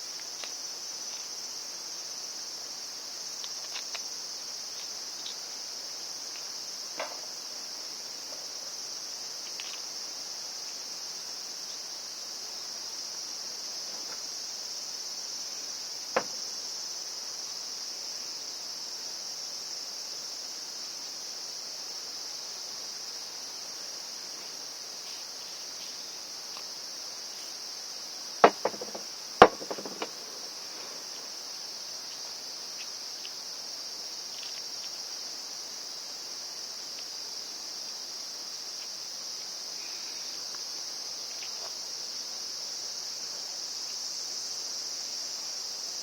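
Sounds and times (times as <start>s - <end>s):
insects chirring: 0.0s - 46.0s
sharp knocks: 28.4s - 30.5s.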